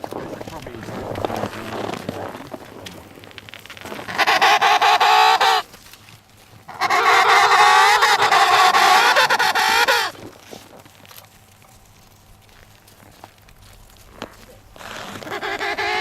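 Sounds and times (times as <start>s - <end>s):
animal calling with rattling tone: 0.0s - 5.9s, 6.6s - 11.2s, 14.1s - 16.0s.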